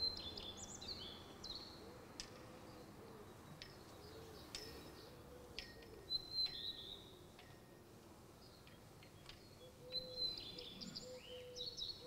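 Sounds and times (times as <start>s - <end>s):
faint bird chirps: 9.3s - 12.0s.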